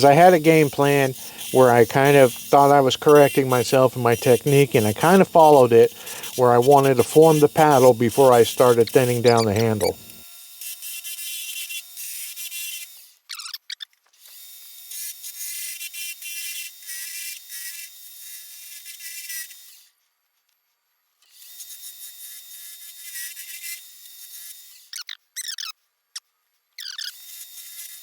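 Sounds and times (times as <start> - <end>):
wood lathe cutting hiss: 0.0 - 10.2.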